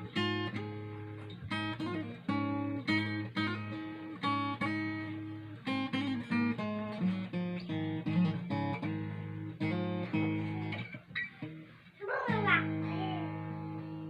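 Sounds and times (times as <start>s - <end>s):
acoustic guitar chords and notes: 0.0s - 14.0s.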